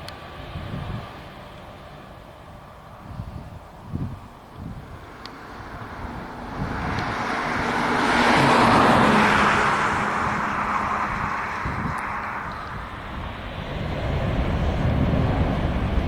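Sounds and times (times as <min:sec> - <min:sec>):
jet engines roaring: 0:00.0 - 0:16.0
low drone: 0:04.7 - 0:16.0.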